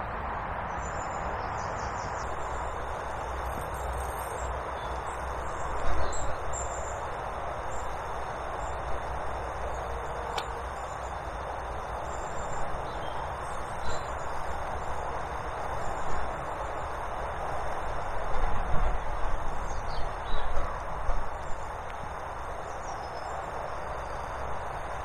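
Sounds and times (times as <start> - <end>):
outdoor hiss and low rumble: 0.0 - 25.0
small birds chirping: 0.7 - 15.0, 19.4 - 20.6, 21.2 - 25.0.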